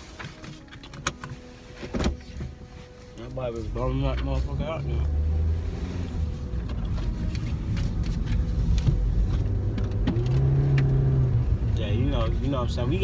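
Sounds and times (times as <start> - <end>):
car engine droning: 3.3 - 13.0.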